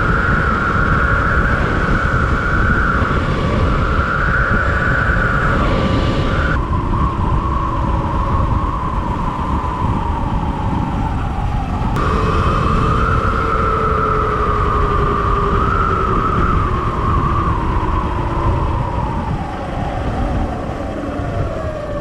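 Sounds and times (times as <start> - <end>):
electric bike motor whine: 0.0 - 22.0
wind rumble on microphone: 0.0 - 22.0.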